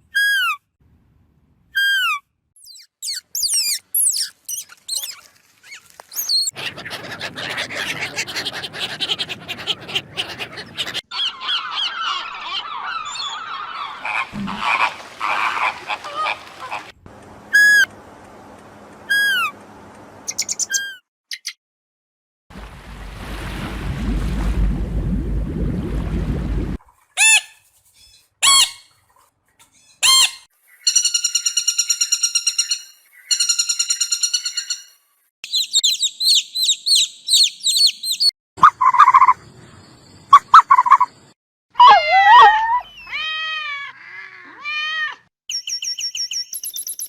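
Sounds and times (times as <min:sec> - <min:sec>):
chorus of calling animals: 0:04.7 - 0:17.0
falling whistle-like animal calls: 0:17.5 - 0:17.9, 0:19.1 - 0:19.5.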